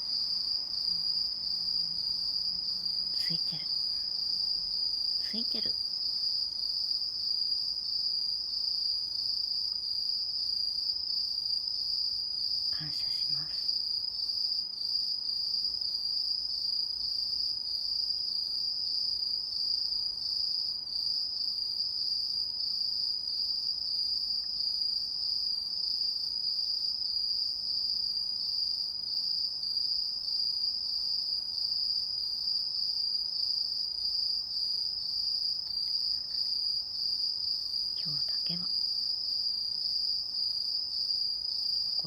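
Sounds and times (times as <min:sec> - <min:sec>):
crickets chirring: 0:00.0 - 0:42.0.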